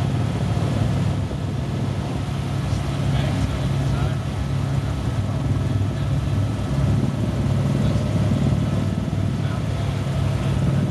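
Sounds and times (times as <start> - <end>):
helicopter rotor drone: 0.0 - 10.9.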